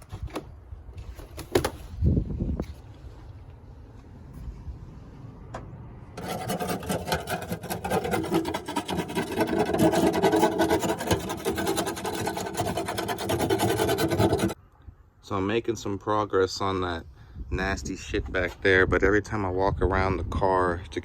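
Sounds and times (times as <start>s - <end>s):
insulation being scraped out: 6.2s - 14.6s.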